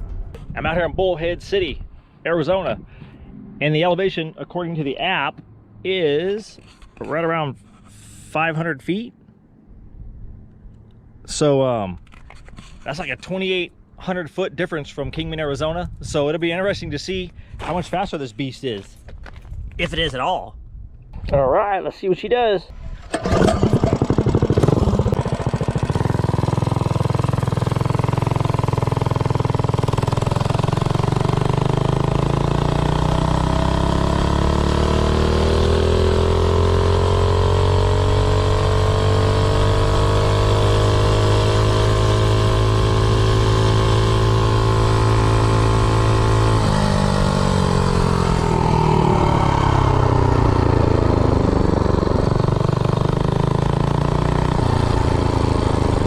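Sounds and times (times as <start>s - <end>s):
minibike engine at full throttle: 22.8s - 56.0s.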